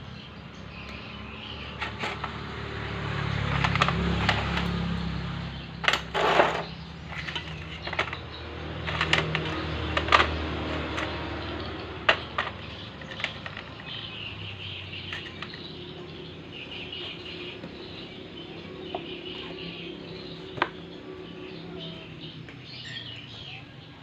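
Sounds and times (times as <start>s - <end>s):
hand tools and metal parts clicking: 1.7s - 2.5s, 3.4s - 16.1s.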